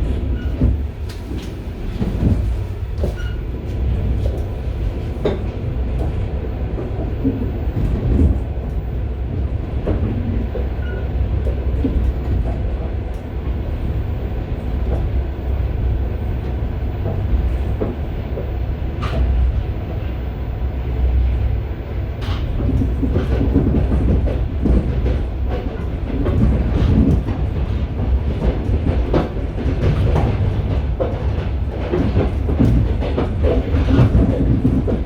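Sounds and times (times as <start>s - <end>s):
train carriage rumble and rattling: 0.0s - 35.0s.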